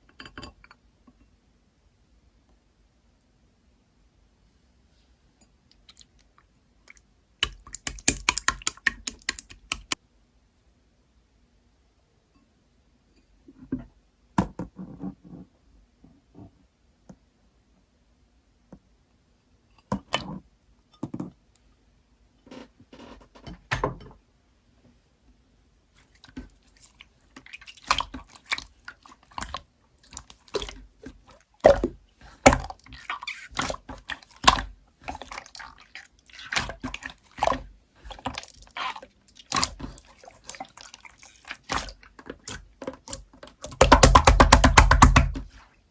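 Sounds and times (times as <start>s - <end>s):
close-up clicks and taps: 7.4s - 10.0s.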